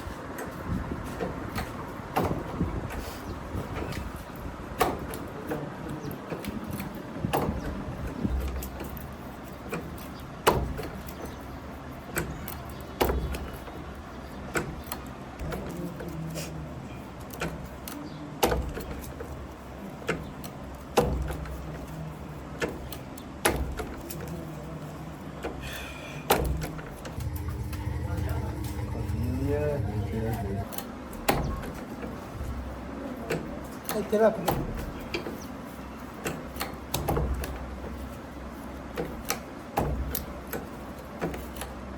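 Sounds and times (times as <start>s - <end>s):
low steady hum: 27.1s - 30.8s.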